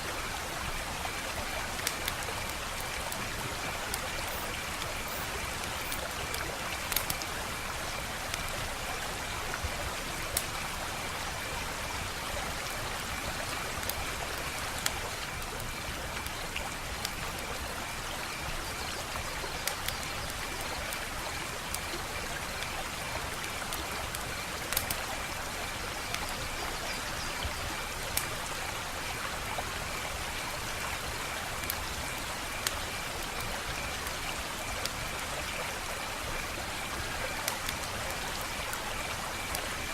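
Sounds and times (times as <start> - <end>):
wood fire crackling: 0.5 - 10.8, 13.0 - 17.7, 19.0 - 25.4, 36.7 - 39.8.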